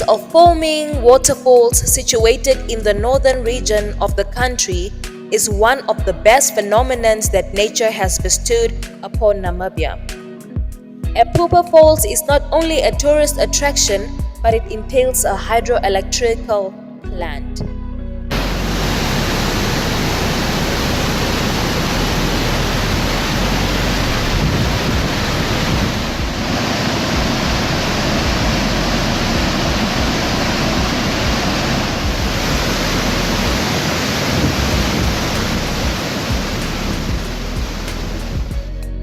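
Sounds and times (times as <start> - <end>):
waterfall rushing: 18.3 - 38.6.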